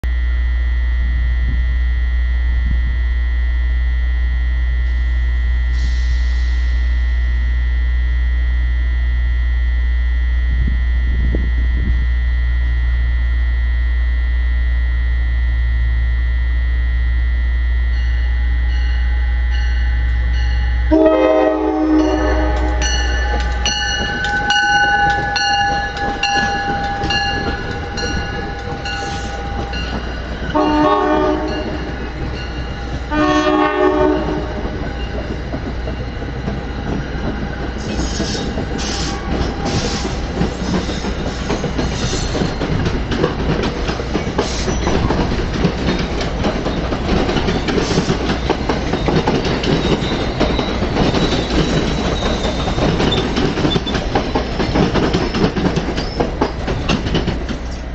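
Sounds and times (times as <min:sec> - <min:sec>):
train rumble and wheel clatter: 0:18.0 - 0:57.9
train horn blasts: 0:18.3 - 0:34.8, 0:37.8 - 0:40.9.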